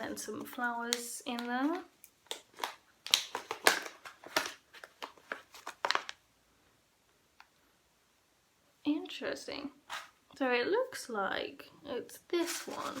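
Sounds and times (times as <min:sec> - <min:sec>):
packaging crinkling: 0:01.3 - 0:06.2, 0:12.4 - 0:13.0.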